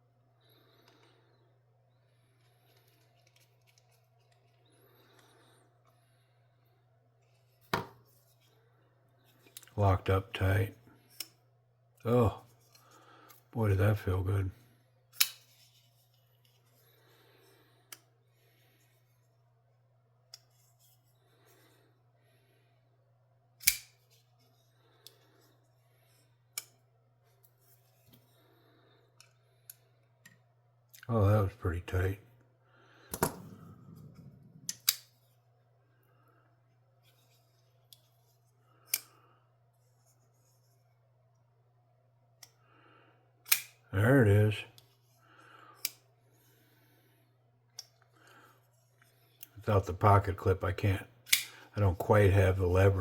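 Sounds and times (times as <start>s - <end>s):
faint steady hum: 0.0s - 53.0s
folding knife clicks: 23.6s - 23.9s, 34.6s - 35.1s, 43.5s - 43.8s, 51.3s - 51.5s.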